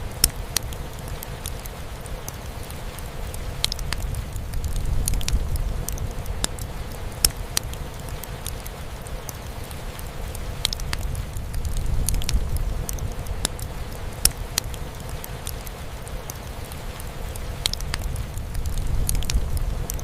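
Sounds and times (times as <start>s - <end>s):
fireplace crackling and popping: 0.0s - 20.0s
rain drumming on a roof: 0.0s - 20.0s.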